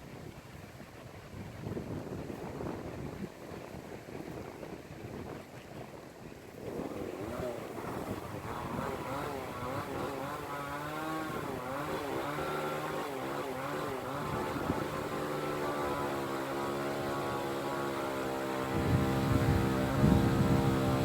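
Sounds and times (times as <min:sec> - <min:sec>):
small engine running: 0:06.6 - 0:21.0.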